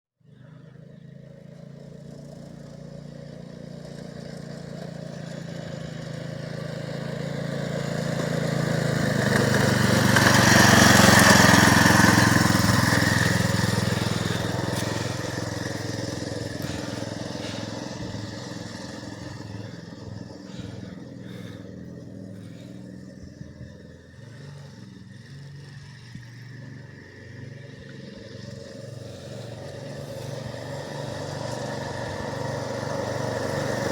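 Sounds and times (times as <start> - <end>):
mini bike engine passing by: 0.2 - 33.9.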